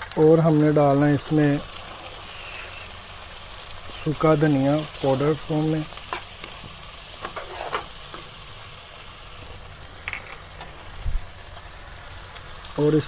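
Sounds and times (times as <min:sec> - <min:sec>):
food sizzling in a wok: 0:00.0 - 0:13.0
spoon stirring and scraping: 0:07.2 - 0:08.3.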